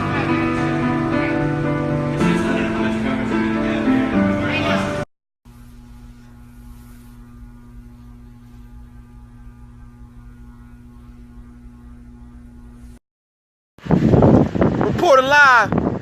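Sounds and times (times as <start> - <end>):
steady electrical hum: 5.5 - 13.0.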